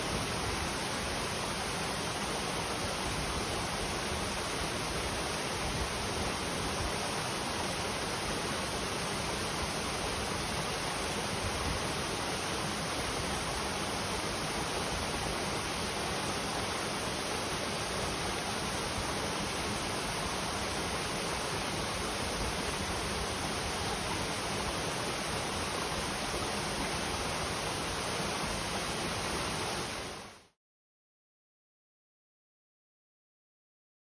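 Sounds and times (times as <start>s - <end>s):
stream flowing over rocks: 0.0s - 30.3s.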